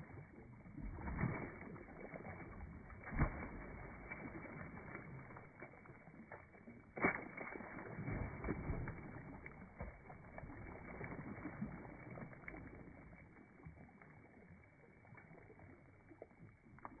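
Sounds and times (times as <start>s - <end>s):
water sloshing against boat hull: 0.1s - 17.0s.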